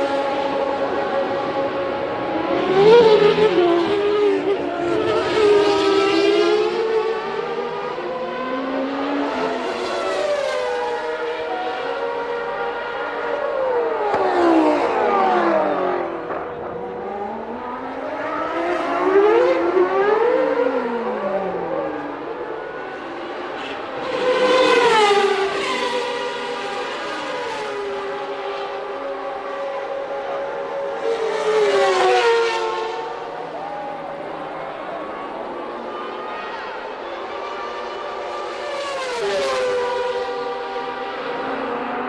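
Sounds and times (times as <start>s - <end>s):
racing cars passing at high revs: 0.0s - 42.0s.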